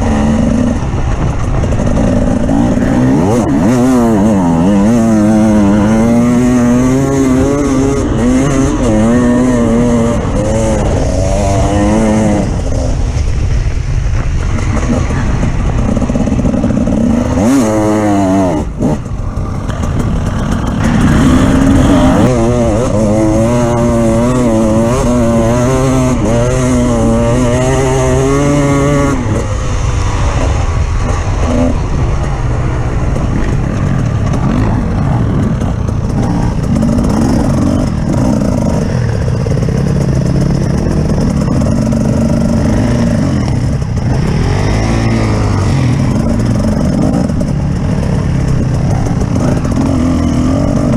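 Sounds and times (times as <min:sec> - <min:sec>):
off-road vehicle engine revving: 0:00.0 - 0:13.4, 0:14.5 - 0:50.9.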